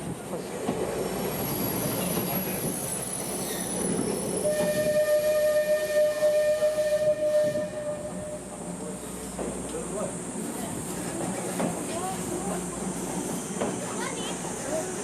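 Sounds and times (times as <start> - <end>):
train rumbling along track: 0.0 - 15.0
train whistle long note: 4.4 - 8.5.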